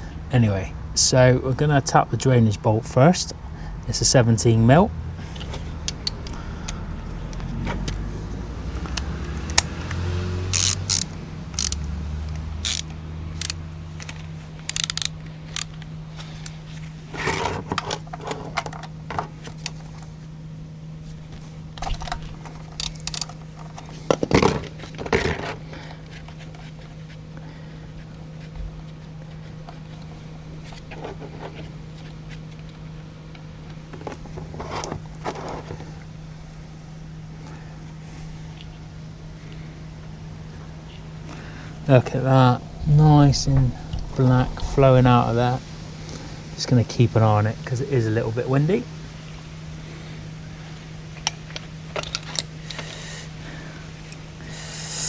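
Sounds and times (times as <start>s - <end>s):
steady low hum: 0.0s - 55.0s
metal tools clinking and scraping: 12.6s - 20.1s, 21.8s - 26.8s, 51.2s - 53.0s.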